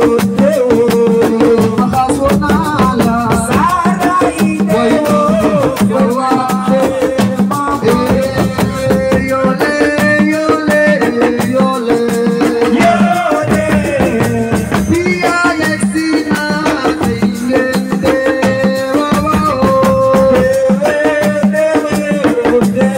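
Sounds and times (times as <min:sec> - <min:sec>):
pitched melody line: 0:00.0 - 0:20.8
drum and rattle percussion: 0:00.0 - 0:22.9.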